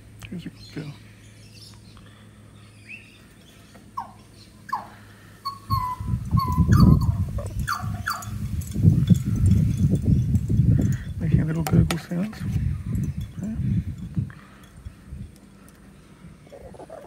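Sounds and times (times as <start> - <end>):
birds whistling: 0.4 - 11.2.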